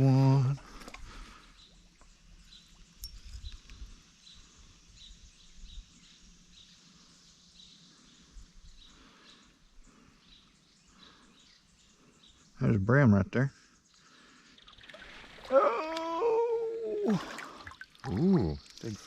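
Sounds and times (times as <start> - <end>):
bird chirping: 1.1 - 16.5.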